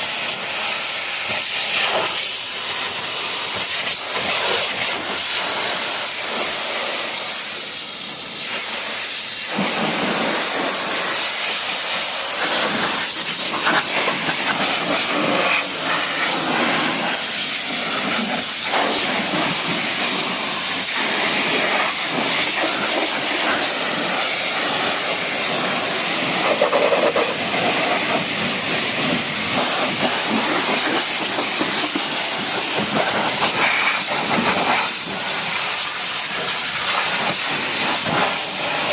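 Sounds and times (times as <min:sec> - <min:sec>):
pressure washer spray hissing: 0:00.0 - 0:38.9.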